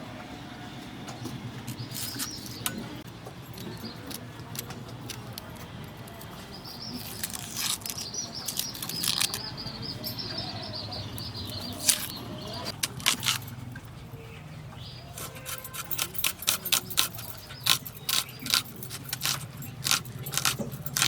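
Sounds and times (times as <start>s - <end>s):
knife cutting onions: 15.2s - 21.0s.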